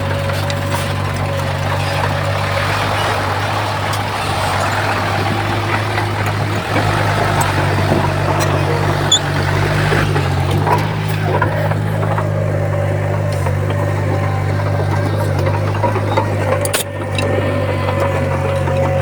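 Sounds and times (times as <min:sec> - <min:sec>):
bulldozer diesel engine droning: 0:00.0 - 0:19.0.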